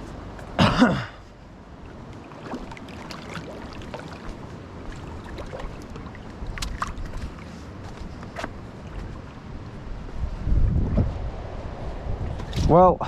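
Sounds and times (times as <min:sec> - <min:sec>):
creek water running: 0:01.4 - 0:09.9.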